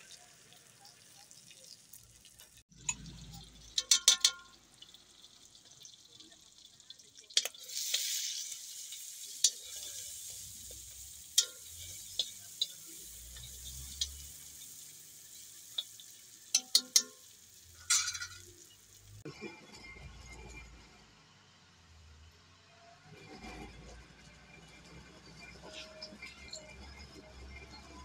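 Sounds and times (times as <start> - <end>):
metal utensil clinking on pan: 2.8 - 5.0, 7.2 - 19.0
meat sizzling in a wok: 3.2 - 19.2
utensil scraping a pan: 7.4 - 18.7.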